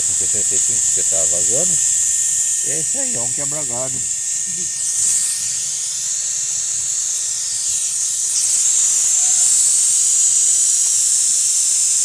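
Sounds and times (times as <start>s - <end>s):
compressed air hissing: 0.0s - 12.0s.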